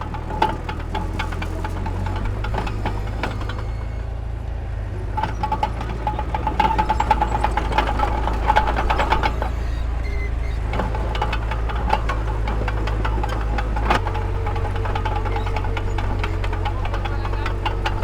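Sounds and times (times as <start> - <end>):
metal clanks and knocks: 0.0 - 4.2, 5.0 - 18.0
diesel machinery droning: 0.0 - 18.0.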